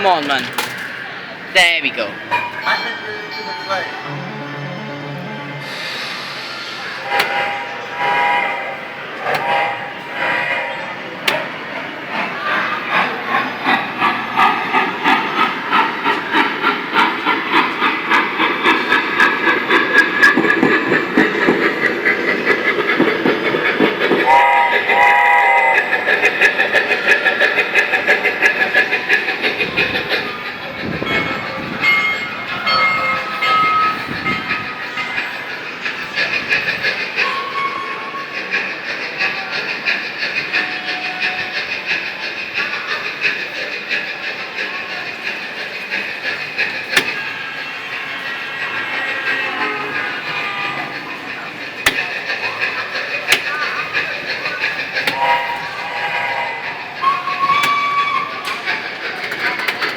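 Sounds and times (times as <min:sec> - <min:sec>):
train clickety-clack effect: 0:00.0 - 0:04.0, 0:05.5 - 0:59.9
train horn blast: 0:06.9 - 0:11.4, 0:24.2 - 0:25.9, 0:55.1 - 0:58.0.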